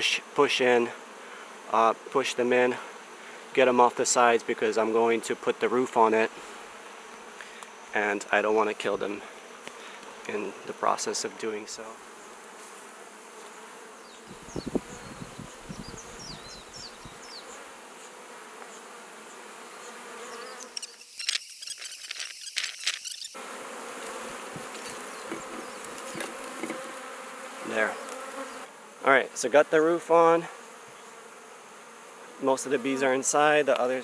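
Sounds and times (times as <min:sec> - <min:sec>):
bees buzzing: 0:06.0 - 0:34.0
wooden hive roof clattering: 0:23.9 - 0:27.1
knocks on wooden hive: 0:24.5 - 0:26.9.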